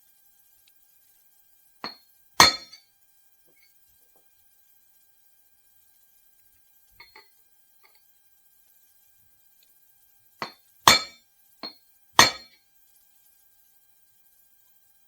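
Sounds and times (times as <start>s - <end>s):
hammer striking metal ringing: 1.8s - 2.8s, 10.4s - 12.6s
light metal clinks: 7.0s - 8.0s.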